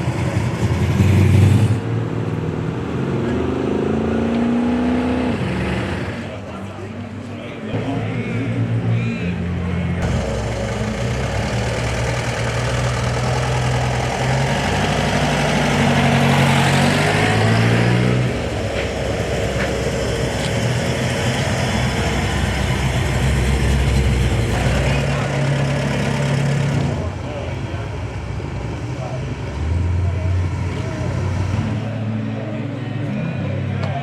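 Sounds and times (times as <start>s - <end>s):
car engine running: 5.5s - 32.9s.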